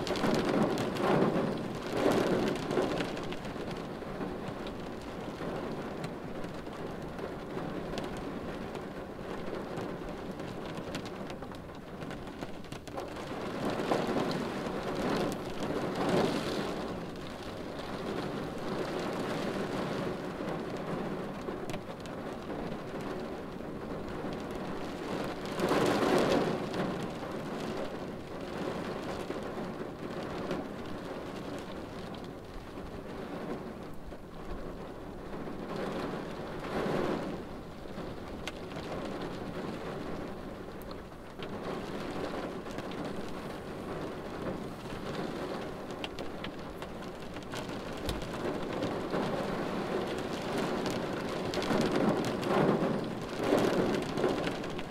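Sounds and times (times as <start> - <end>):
rain on car windshield: 0.0 - 54.9
raindrop taps: 9.7 - 19.2, 37.9 - 54.9.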